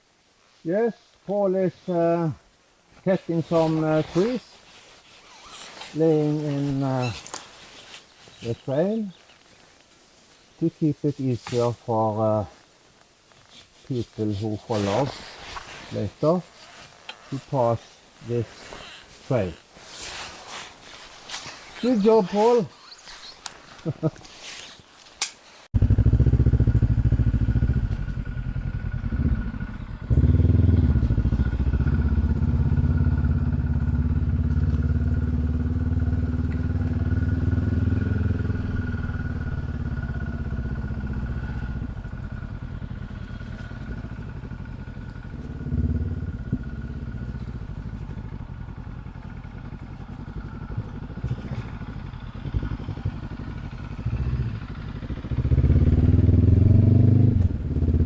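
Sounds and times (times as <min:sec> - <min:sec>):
motorcycle engine revving: 0:25.8 - 0:58.0.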